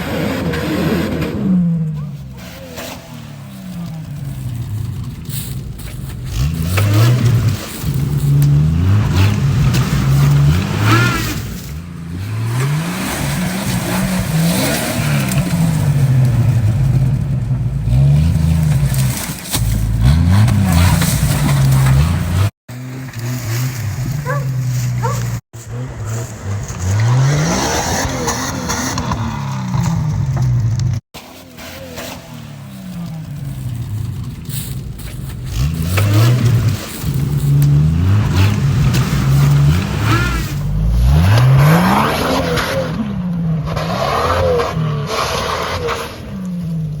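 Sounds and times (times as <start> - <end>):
car engine revving hard: 20.0 - 30.4, 35.5 - 46.3.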